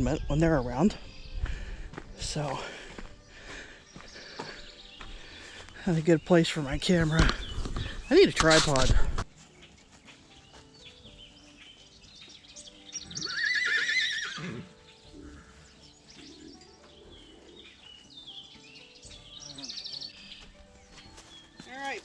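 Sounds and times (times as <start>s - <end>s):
small birds chirping faintly: 0.0s - 22.0s
horse whinnying: 13.1s - 15.4s.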